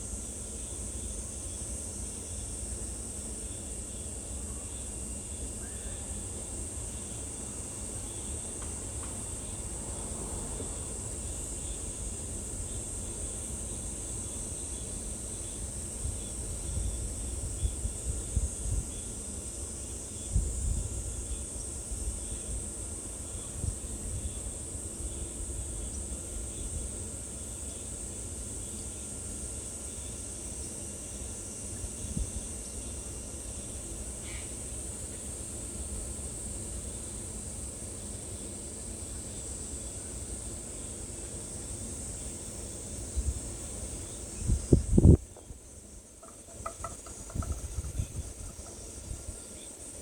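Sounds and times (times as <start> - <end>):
high-pitched insect chorus: 0.0 - 50.0
microphone rumbles: 46.8 - 49.3.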